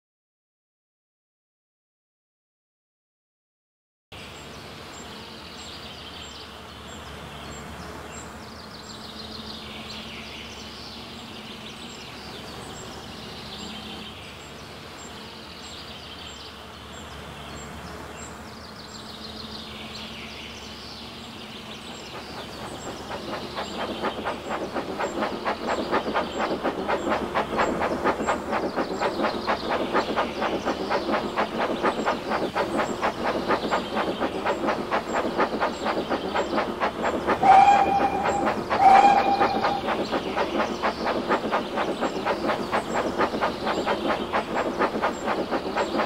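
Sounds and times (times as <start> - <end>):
train rumbling on rails: 21.5 - 46.0
wheels clickety-clack over rail joints: 21.8 - 46.0.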